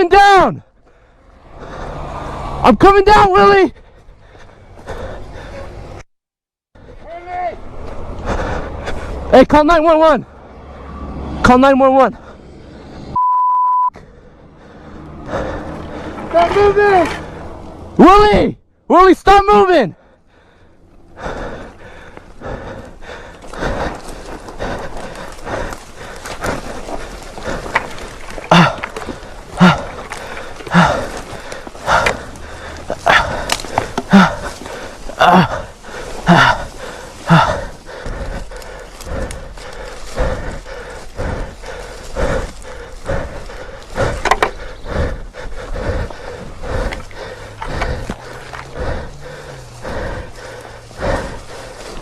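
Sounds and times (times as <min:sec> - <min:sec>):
person breathing heavily: 0:00.6 - 0:02.6, 0:03.6 - 0:06.0, 0:08.0 - 0:09.3, 0:12.1 - 0:13.2, 0:14.0 - 0:18.0, 0:19.8 - 0:52.0
person gasping: 0:03.7 - 0:06.0, 0:14.0 - 0:16.3, 0:19.9 - 0:52.0
footsteps crunching on loose ground: 0:21.2 - 0:52.0.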